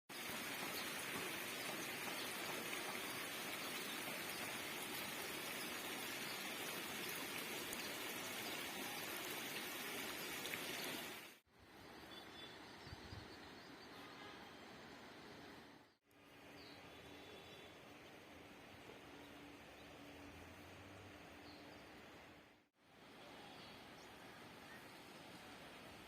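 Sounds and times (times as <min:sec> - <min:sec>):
rushing running water: 0:00.1 - 0:11.4
outdoor ambience: 0:00.1 - 0:26.0.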